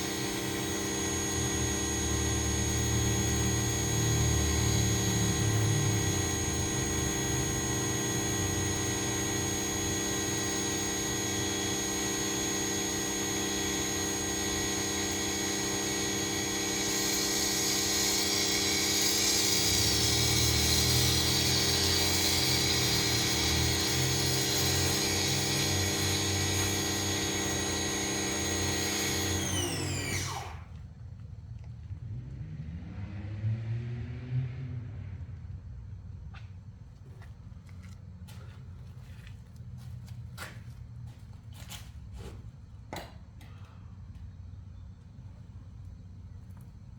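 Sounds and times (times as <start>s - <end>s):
pressure washer running: 0.0s - 30.8s
hissing water spray: 13.2s - 29.5s.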